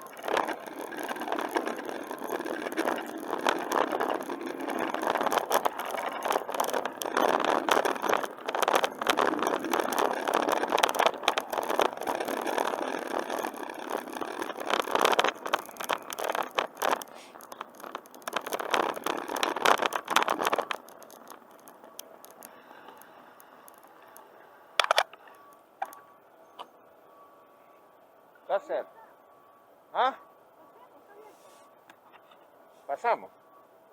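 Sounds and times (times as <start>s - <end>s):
bicycle rattling and scraping: 0.0s - 26.0s
faint hiss: 17.1s - 17.4s.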